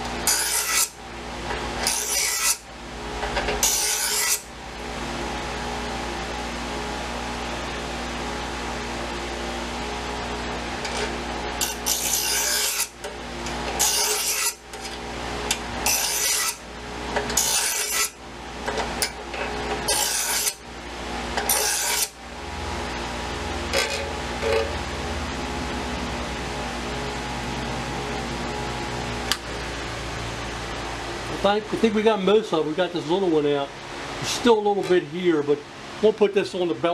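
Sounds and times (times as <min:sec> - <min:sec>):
steady hum: 0:00.0 - 0:36.9
abrasive scraping on knife blade: 0:00.2 - 0:01.0, 0:01.8 - 0:02.6, 0:03.6 - 0:04.4, 0:10.8 - 0:16.6, 0:17.2 - 0:18.2, 0:18.8 - 0:20.6, 0:21.4 - 0:22.2, 0:23.7 - 0:24.8.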